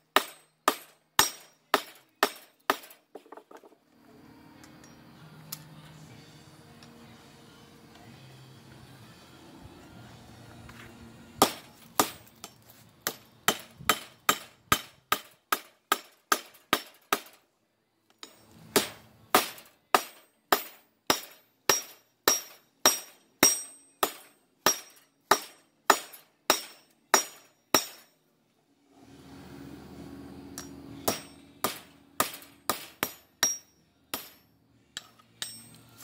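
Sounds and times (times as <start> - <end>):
hammer ringing on metal: 18.2 - 28.1, 30.6 - 34.5.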